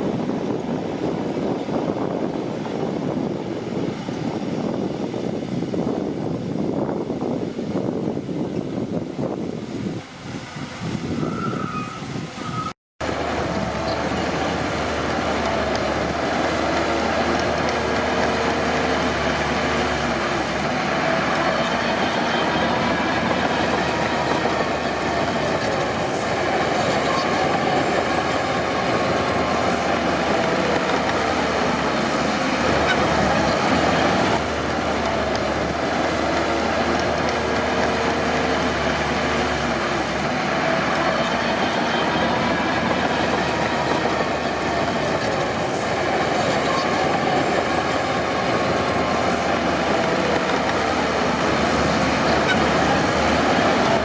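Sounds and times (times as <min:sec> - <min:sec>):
steel tracks clanking and squealing: 0:11.1 - 0:54.0
bulldozer diesel engine running: 0:13.0 - 0:54.0.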